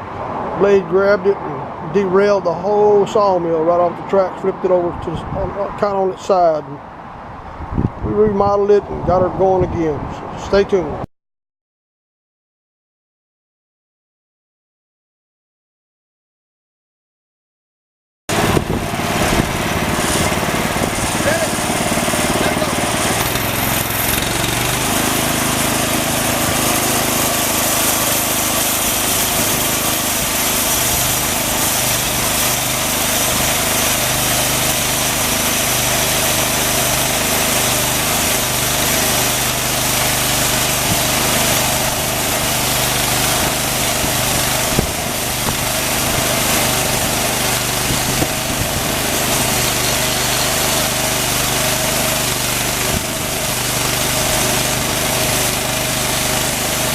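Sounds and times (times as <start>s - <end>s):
sawmill engine running: 18.3s - 56.9s
band blade sawing wood: 19.0s - 56.9s.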